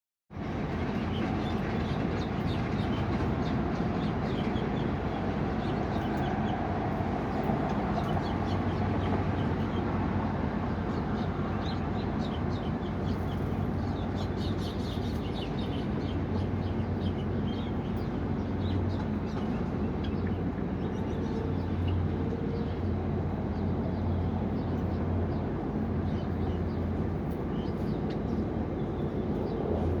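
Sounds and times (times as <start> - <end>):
small birds chirping: 10.8 - 29.7.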